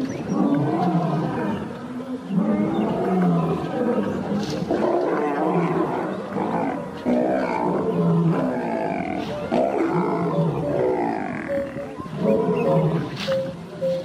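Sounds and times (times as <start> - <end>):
lions growling and snarling: 0.0 - 13.3.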